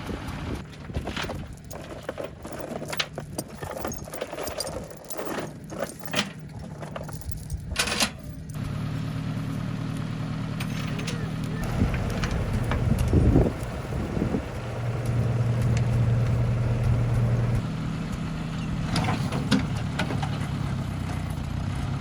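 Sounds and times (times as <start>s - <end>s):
engine running steadily: 0.0s - 22.0s
sharp clicks and knocks: 11.6s - 17.6s.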